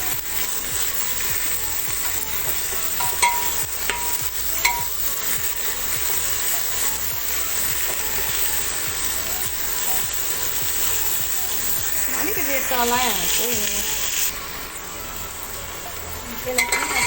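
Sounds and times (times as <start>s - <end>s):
onions sizzling in hot oil: 0.0s - 17.0s
utensil knocking against pan: 3.0s - 5.0s.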